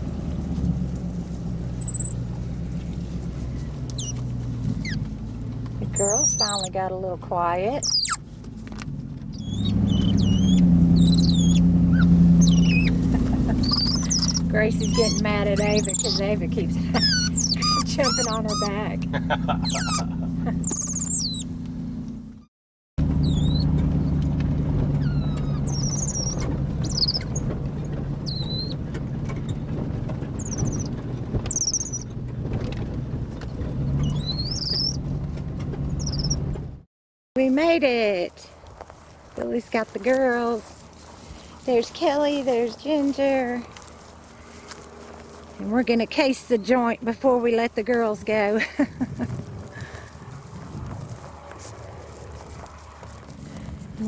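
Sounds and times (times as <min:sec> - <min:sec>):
vehicle engine hum: 0:00.0 - 0:54.0
monkey chirping calls: 0:01.8 - 0:02.2, 0:04.0 - 0:04.2, 0:06.0 - 0:06.7, 0:07.8 - 0:08.2, 0:09.3 - 0:21.5, 0:23.2 - 0:23.7, 0:25.0 - 0:27.5, 0:28.2 - 0:28.8, 0:30.4 - 0:32.1, 0:34.0 - 0:35.0, 0:36.0 - 0:36.4.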